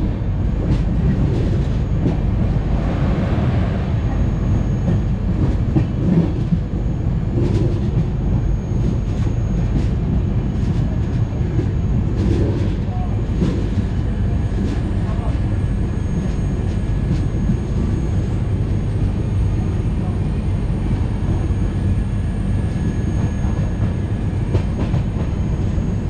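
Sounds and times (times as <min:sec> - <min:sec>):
rail joint clicks: 0:00.0 - 0:04.1, 0:04.8 - 0:06.7, 0:07.3 - 0:14.0, 0:23.2 - 0:25.8
train wheels rumbling on rails: 0:00.0 - 0:26.0.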